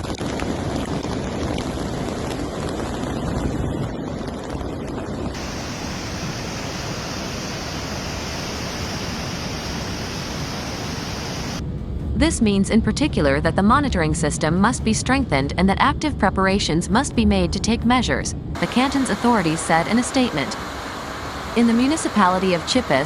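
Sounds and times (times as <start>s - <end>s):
wind noise on microphone: 0.0s - 18.6s
river rushing: 5.4s - 11.6s, 18.6s - 23.0s.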